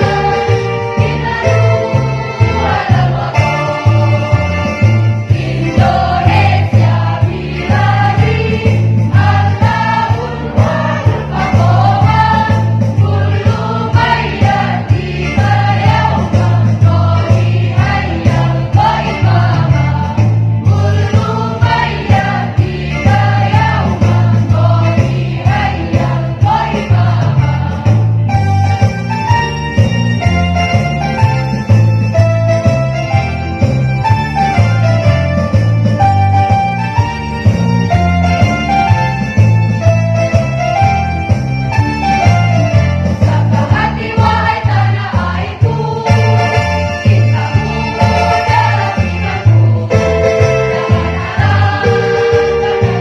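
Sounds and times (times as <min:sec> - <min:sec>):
choir singing: 0:00.0 - 0:28.0, 0:43.2 - 0:53.0
music with pulsing bass: 0:00.0 - 0:53.0.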